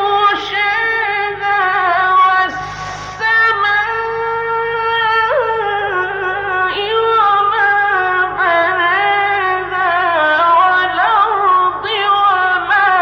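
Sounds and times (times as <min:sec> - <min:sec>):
short breath: 0:02.5 - 0:03.5.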